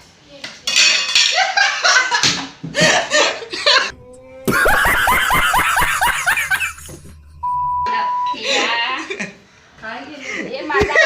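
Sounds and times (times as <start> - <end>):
people laughing and shrieking: 2.8 - 7.2
comic falling-pitch sound effect: 3.9 - 8.4.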